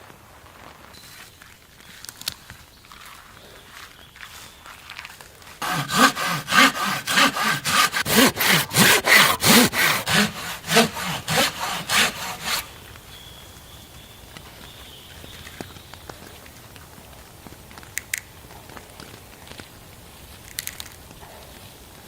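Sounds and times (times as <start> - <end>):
hand saw cutting wood: 5.6 - 12.8.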